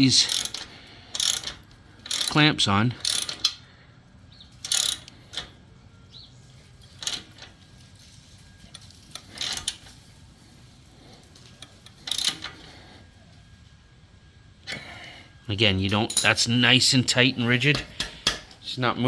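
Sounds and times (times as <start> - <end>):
ratchet wrench clicking: 0.1 - 2.4, 3.0 - 3.7, 4.6 - 5.6, 6.9 - 7.5, 9.1 - 9.9, 11.6 - 12.7.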